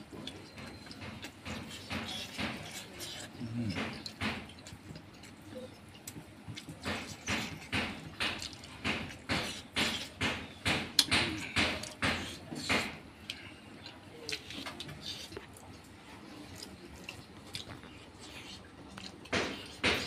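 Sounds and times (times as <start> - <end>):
wet chewing and lip-smacking: 0.0 - 20.0.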